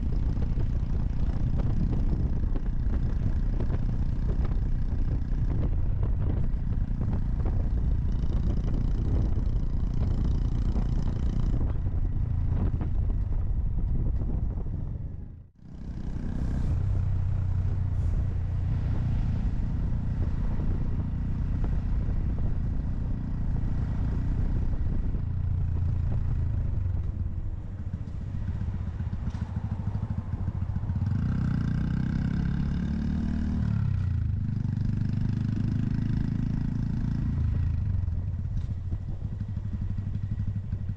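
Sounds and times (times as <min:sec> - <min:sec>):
steady low rumble: 0:00.0 - 0:31.2
motorcycle engine running: 0:00.0 - 0:40.9.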